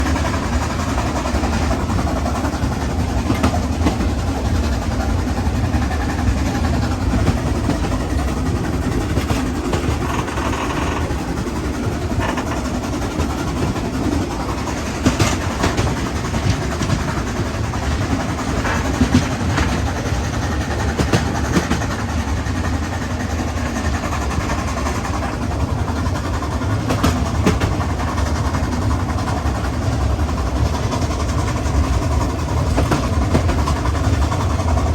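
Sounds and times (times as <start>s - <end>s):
steam train rumble: 0.0s - 34.9s.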